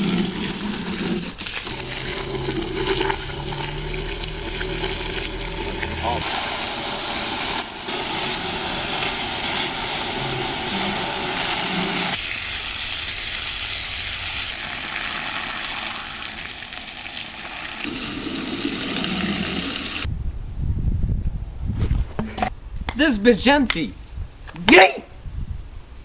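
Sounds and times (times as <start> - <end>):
steady hiss: 4.1 - 16.6.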